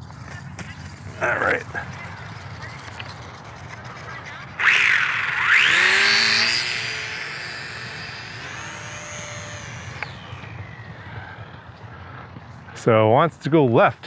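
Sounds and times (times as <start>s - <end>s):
electric motor propeller whine: 4.3s - 12.5s.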